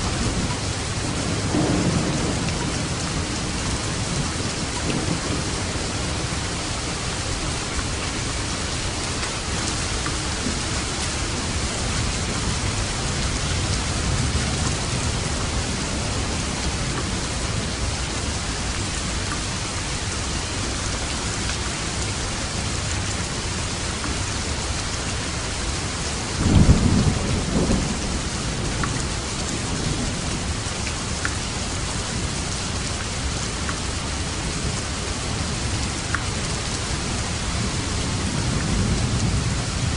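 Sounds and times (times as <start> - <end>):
thunder rumbling: 0.0 - 6.9, 10.0 - 19.2, 25.8 - 30.6
heavy rain falling: 0.0 - 39.9.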